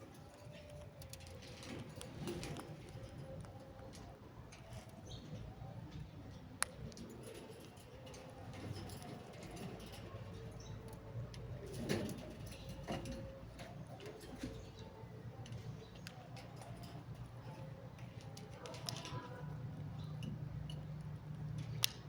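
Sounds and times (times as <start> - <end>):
scattered clicks: 14.6 - 22.0.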